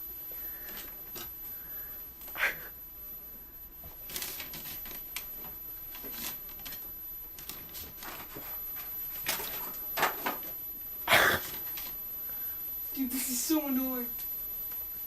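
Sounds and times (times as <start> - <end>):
objects clicking and knocking: 9.2 - 10.6.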